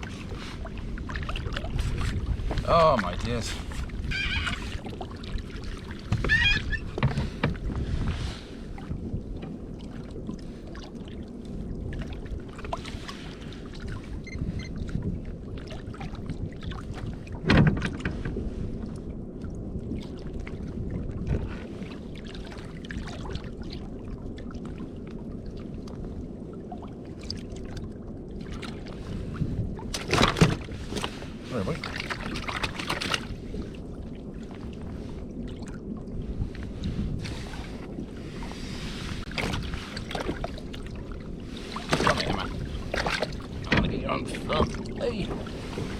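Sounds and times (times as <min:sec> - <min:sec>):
low rumble of wind and water: 0:00.0 - 0:45.9
kayak knocks: 0:06.0 - 0:07.9, 0:17.4 - 0:18.4, 0:29.9 - 0:31.2, 0:41.8 - 0:45.9.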